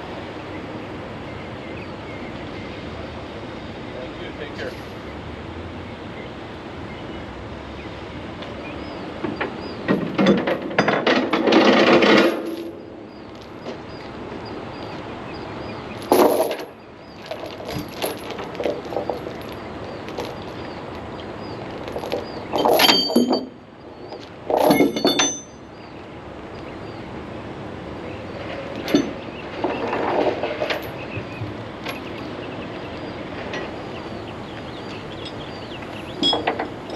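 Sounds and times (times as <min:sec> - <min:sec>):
heavy metal clanking: 0:09.2 - 0:14.5, 0:15.9 - 0:25.8, 0:28.3 - 0:36.9.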